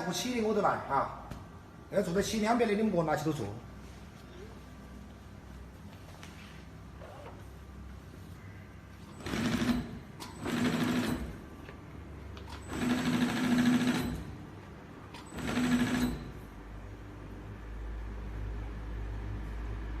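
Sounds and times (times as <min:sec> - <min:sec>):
sewing machine stitching: 0:09.1 - 0:11.6, 0:12.4 - 0:14.4, 0:15.1 - 0:16.5.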